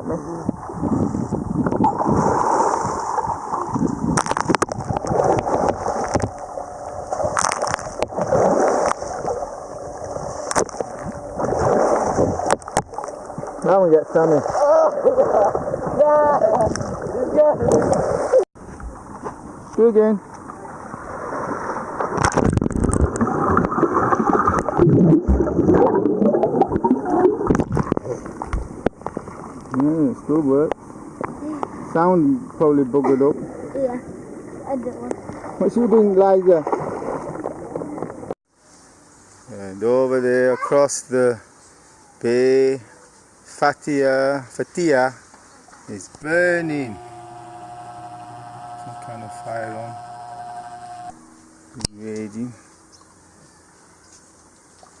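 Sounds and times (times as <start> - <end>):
muffled water sloshing and splashing: 0.2 - 29.9, 33.3 - 38.4
muffled water gurgling underwater: 20.5 - 29.7.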